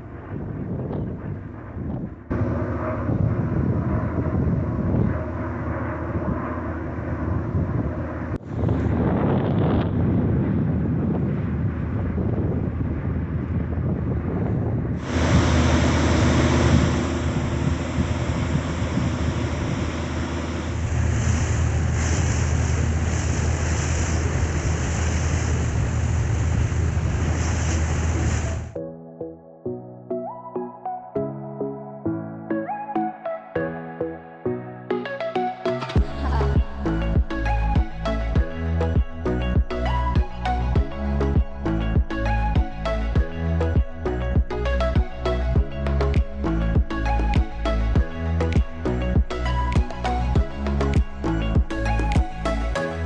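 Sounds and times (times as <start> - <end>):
steady engine drone: 0.0 - 28.8, 35.8 - 53.0
wind buffeting microphone: 0.0 - 28.8, 36.0 - 52.8
water rushing past hull: 15.0 - 28.8.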